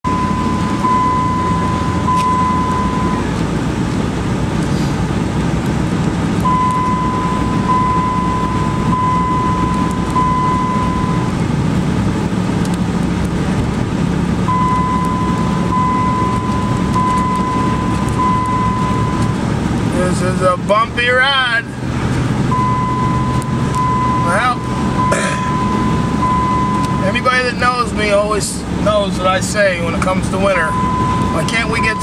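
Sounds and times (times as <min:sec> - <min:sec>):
truck engine and road rumble: 0:00.0 - 0:32.0
high electronic beeps: 0:00.1 - 0:03.3, 0:06.4 - 0:11.3, 0:14.4 - 0:19.4, 0:22.5 - 0:27.4, 0:30.6 - 0:32.0.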